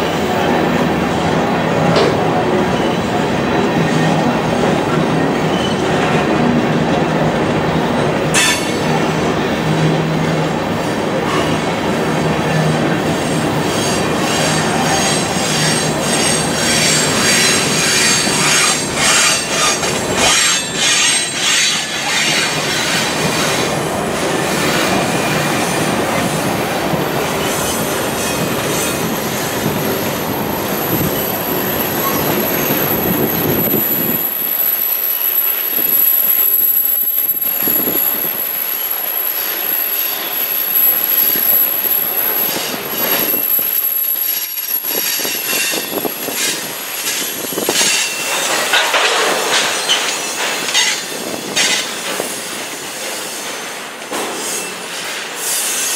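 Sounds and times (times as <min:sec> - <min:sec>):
wheels clattering over rail joints: 0:01.8 - 0:09.1, 0:13.6 - 0:55.4
high-pitched wheel squeal: 0:30.8 - 0:48.3.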